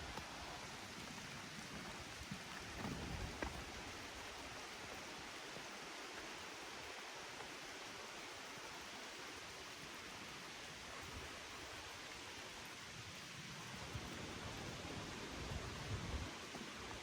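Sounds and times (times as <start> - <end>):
steady rain hiss: 0.0 - 17.0.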